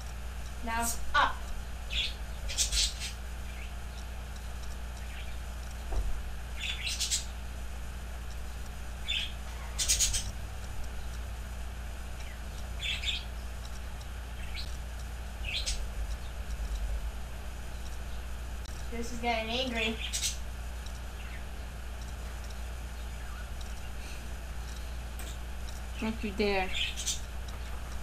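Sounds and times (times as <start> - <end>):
steady low hum: 0.0 - 28.0
bird chirping: 1.5 - 4.1, 4.9 - 7.4, 9.0 - 10.4, 12.1 - 14.8, 15.4 - 16.6, 19.0 - 24.0, 26.0 - 27.7.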